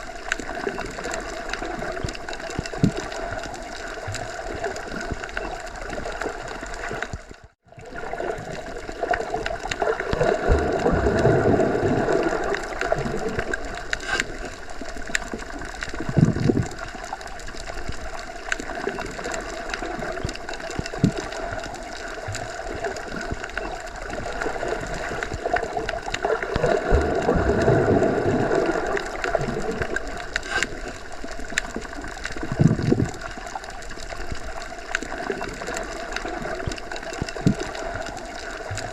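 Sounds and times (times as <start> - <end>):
underwater rushing water: 0.0 - 38.9.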